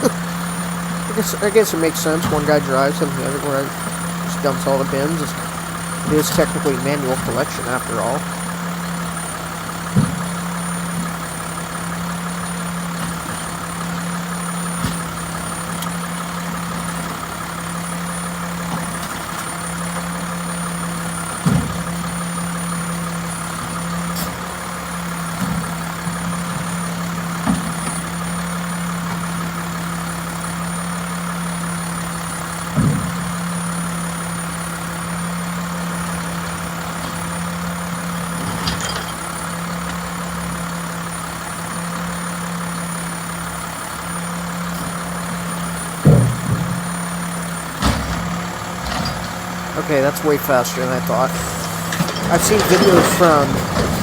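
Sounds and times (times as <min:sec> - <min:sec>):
diesel truck engine idling: 0:00.0 - 0:54.0
thumps and bangs: 0:46.0 - 0:47.0.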